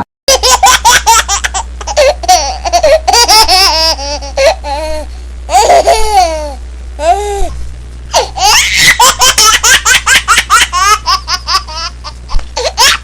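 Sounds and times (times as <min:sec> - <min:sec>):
high-pitched laughter: 0:08.1 - 0:13.0.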